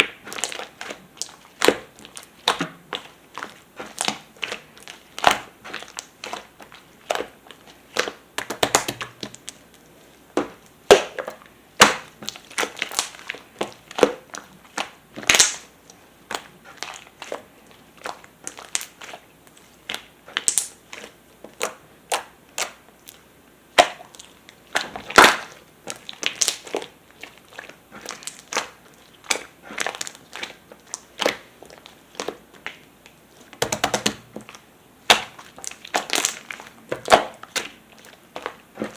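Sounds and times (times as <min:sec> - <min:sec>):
slime clicking and popping: 0:08.0 - 0:09.6, 0:15.2 - 0:15.7, 0:33.6 - 0:37.7.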